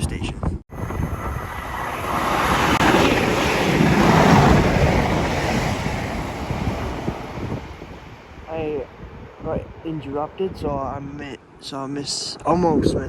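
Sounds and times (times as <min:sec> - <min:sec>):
passenger train passing: 0:00.7 - 0:10.5.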